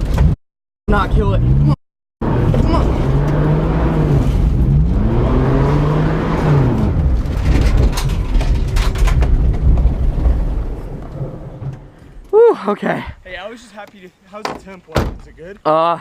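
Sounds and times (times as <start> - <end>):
road noise: 0.0 - 15.7
car engine revving: 1.0 - 8.0.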